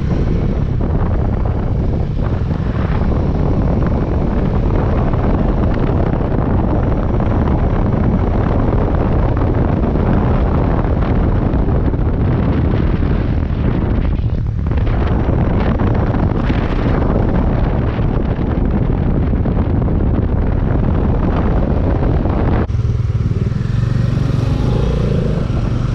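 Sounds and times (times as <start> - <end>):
wind rushing over microphone: 0.0 - 25.9
motorcycle engine: 19.9 - 25.9.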